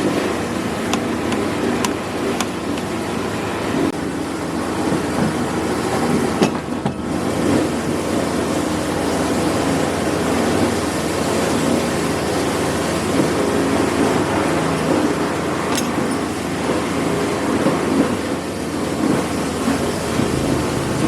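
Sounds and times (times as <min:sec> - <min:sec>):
machine running loudly: 0:17.7 - 0:21.0.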